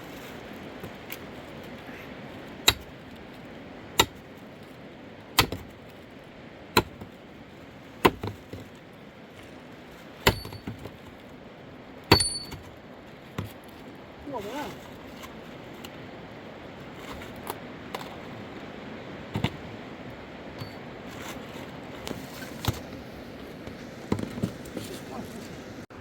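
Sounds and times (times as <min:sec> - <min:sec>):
axe chopping wood: 0:02.6 - 0:03.0, 0:04.0 - 0:04.2, 0:05.4 - 0:05.7, 0:06.8 - 0:07.1, 0:08.0 - 0:08.6, 0:10.2 - 0:10.9, 0:12.1 - 0:12.6.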